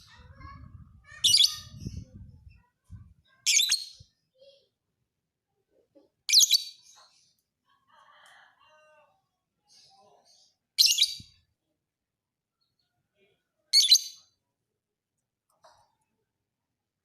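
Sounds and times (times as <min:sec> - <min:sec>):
soft bird chirps: 0:09.6 - 0:11.5.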